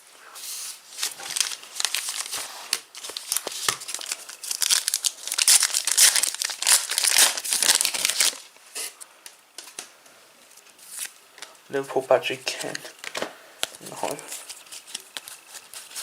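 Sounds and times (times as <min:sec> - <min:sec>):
plastic wrapper tearing and crinkling: 0:00.9 - 0:08.5, 0:10.8 - 0:11.6.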